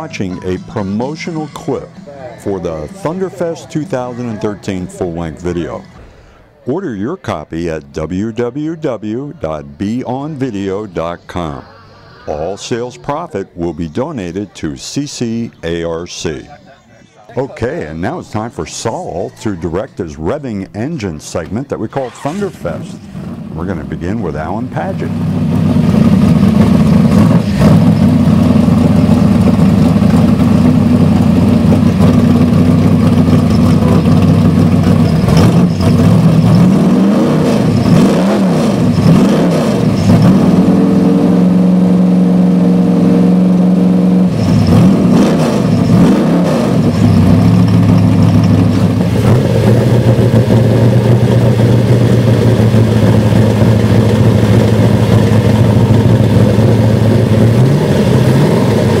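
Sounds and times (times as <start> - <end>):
car engine idling and revving: 22.0 - 59.0.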